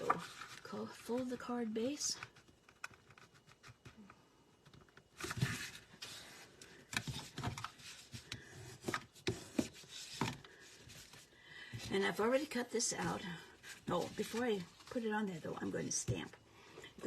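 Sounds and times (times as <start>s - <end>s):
paper rustling and scraping: 0.0s - 1.5s, 5.2s - 11.3s, 13.0s - 15.2s.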